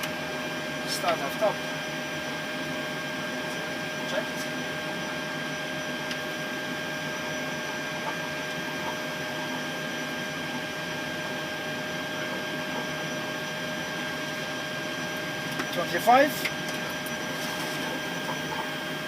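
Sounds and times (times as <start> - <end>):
steady whining tones: 0.0 - 19.0.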